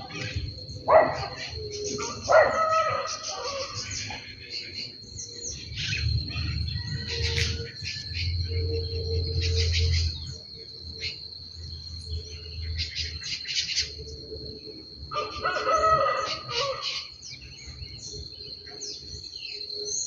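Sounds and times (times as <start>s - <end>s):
bird long call: 0.0s - 10.2s
bird chirps: 0.0s - 14.2s
high-pitched insect drone: 0.0s - 20.0s.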